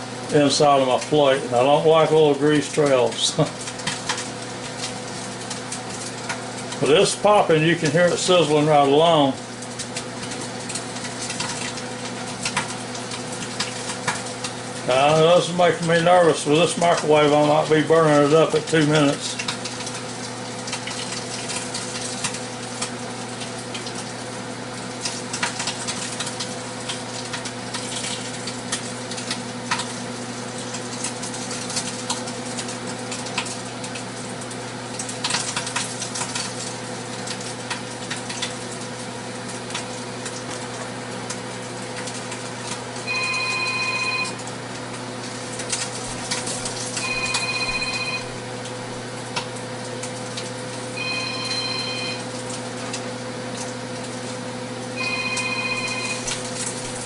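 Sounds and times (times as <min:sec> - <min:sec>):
microwave humming: 0:00.0 - 0:57.0
bacon popping and crackling: 0:02.8 - 0:57.0
electronic ringing tone: 0:43.0 - 0:44.4, 0:47.0 - 0:48.4, 0:51.0 - 0:52.3, 0:55.0 - 0:56.4.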